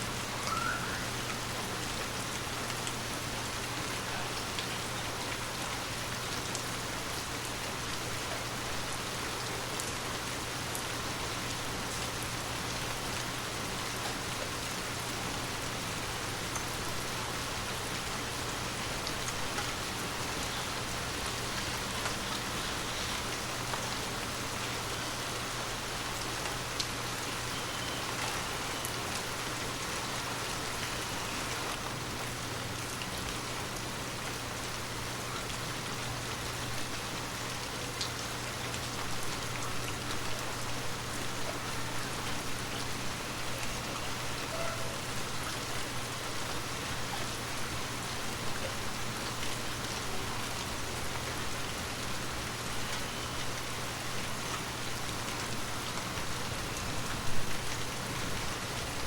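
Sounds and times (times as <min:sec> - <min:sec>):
heavy rain hissing: 0:00.0 - 0:37.9.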